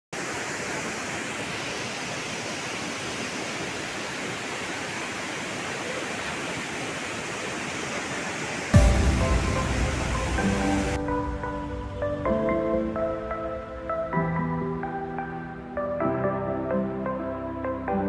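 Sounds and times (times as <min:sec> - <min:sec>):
waterfall roar: 0:00.2 - 0:11.0
music: 0:08.8 - 0:18.0.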